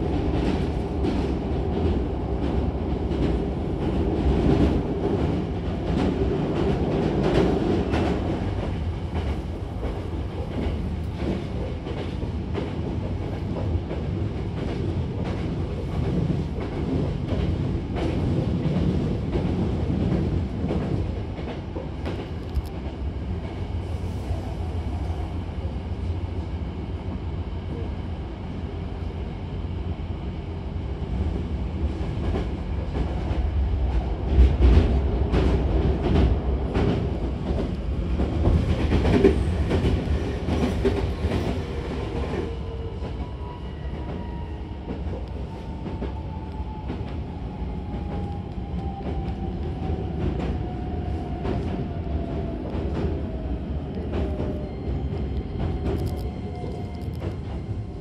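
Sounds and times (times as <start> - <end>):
train carriage rumble: 0.0 - 58.0.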